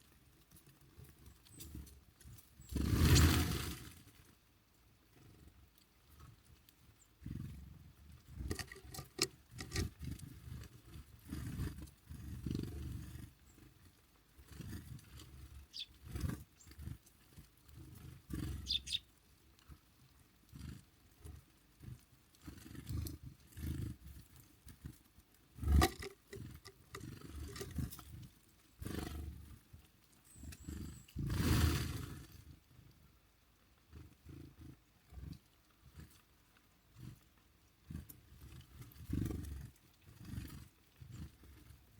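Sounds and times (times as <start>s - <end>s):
faint high bird chirps: 15.7s - 16.0s, 18.6s - 19.1s.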